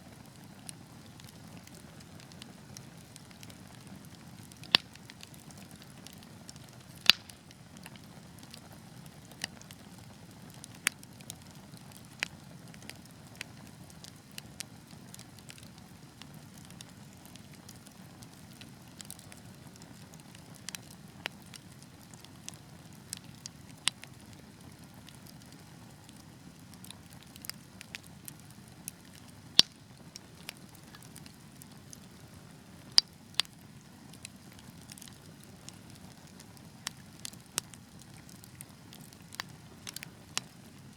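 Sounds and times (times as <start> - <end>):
logs crackling and popping: 0.1 - 40.9
wood fire rumbling: 0.1 - 40.9.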